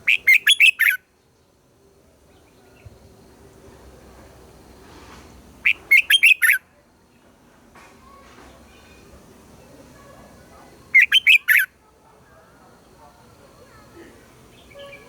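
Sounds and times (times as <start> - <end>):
bulbul singing: 0.0 - 1.6, 5.6 - 6.7, 10.7 - 11.8, 12.7 - 15.0.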